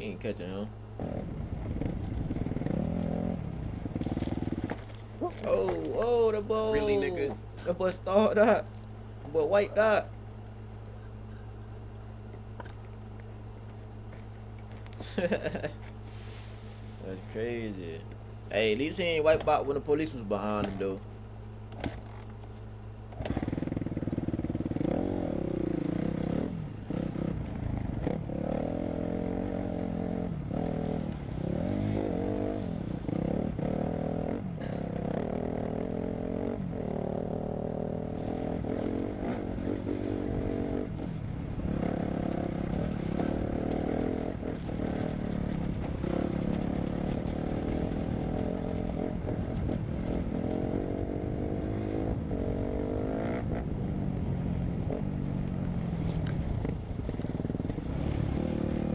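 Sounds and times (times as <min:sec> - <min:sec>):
dirt bike engine revving: 0:00.0 - 0:10.2, 0:23.2 - 0:58.9.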